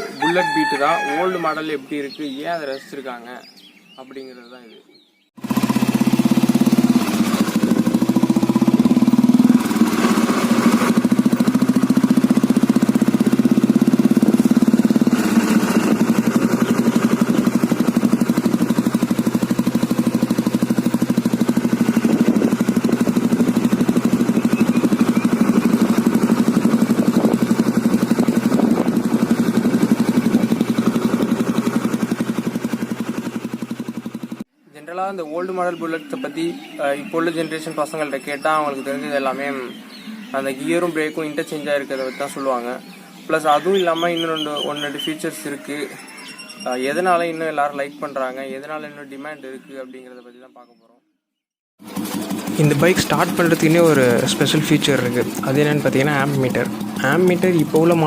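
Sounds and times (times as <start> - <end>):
motorcycle engine idling: 5.4 - 34.4, 51.8 - 58.0.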